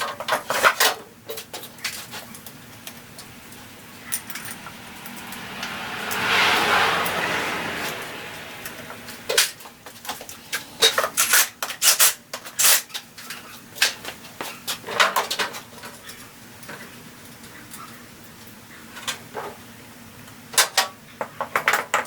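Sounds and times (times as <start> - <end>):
metal parts and tools clanking: 0.0 - 5.5, 9.3 - 14.0.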